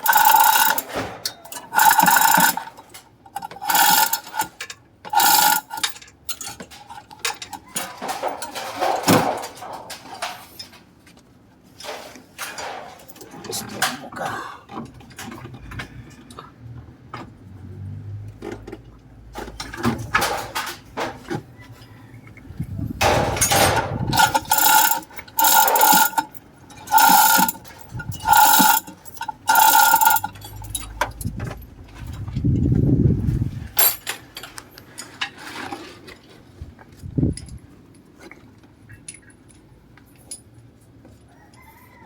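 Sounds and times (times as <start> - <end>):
ratchet wrench clicking: 0.0 - 0.9, 1.5 - 2.6, 3.4 - 6.0, 24.1 - 31.0
metal tool clinks: 23.4 - 31.3.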